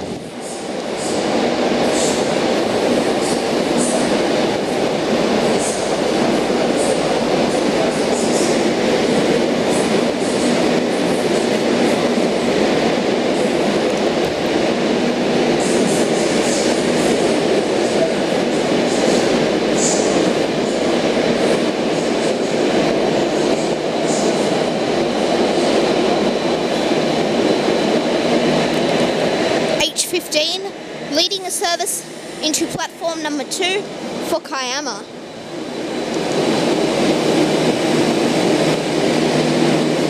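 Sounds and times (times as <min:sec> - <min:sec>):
train wheels rumbling on rail: 0:00.0 - 0:40.0.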